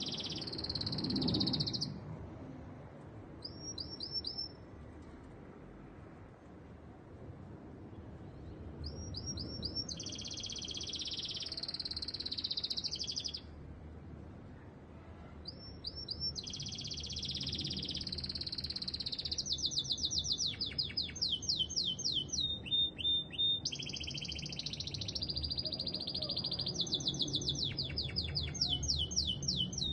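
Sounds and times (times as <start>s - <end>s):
canary singing trills: 0.0s - 2.0s, 3.4s - 4.6s, 8.8s - 13.5s, 15.4s - 29.9s.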